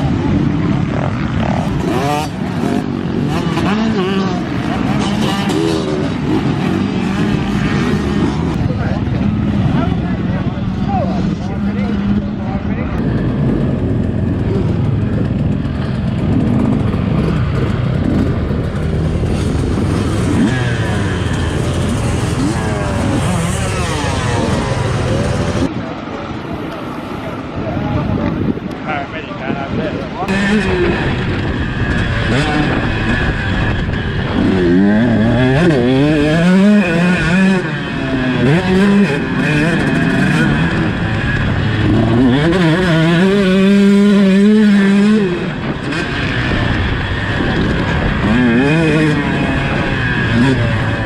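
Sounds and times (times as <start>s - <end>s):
motocross bike engine revving: 0.0s - 25.7s, 30.2s - 51.0s.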